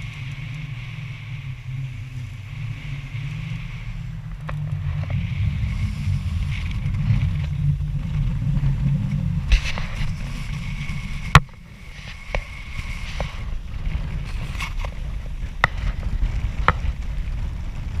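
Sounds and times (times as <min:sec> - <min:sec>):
boat engine rumble: 0:00.0 - 0:18.0.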